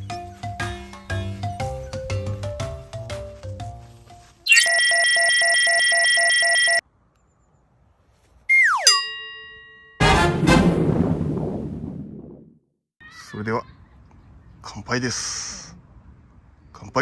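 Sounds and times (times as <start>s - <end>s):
falling whistle: 8.5s - 9.0s
ringing tone: 8.5s - 10.0s
loud noisy hit: 10.0s - 12.4s.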